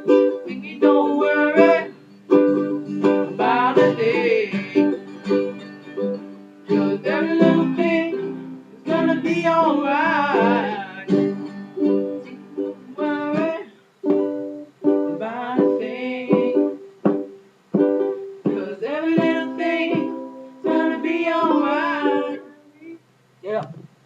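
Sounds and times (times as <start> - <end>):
wordless singing: 0.0 - 2.0, 2.7 - 5.4, 6.7 - 13.8, 15.0 - 16.9, 18.5 - 23.0
ukulele strumming chords: 0.0 - 23.0.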